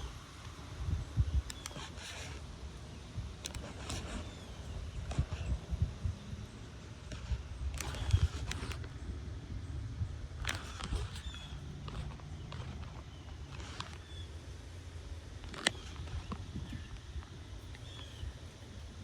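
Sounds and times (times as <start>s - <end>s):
strong wind buffeting microphone: 0.0s - 13.8s.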